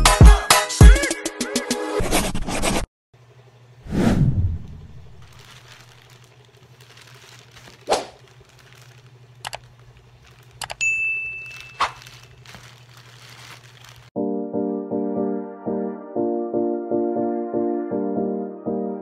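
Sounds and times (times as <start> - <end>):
plastic pouch crinkling: 5.2 - 14.2
bright bell-like ding: 10.8 - 11.8.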